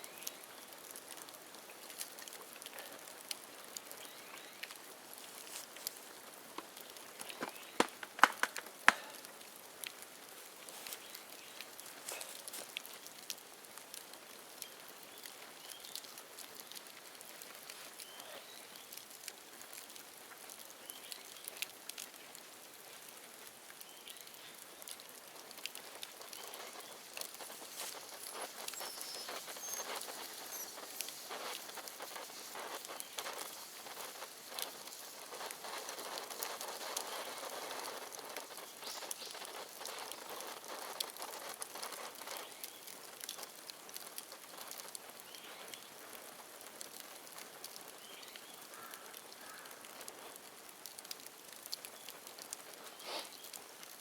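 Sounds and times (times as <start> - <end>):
bamboo bonfire crackling and popping: 0.0 - 54.0.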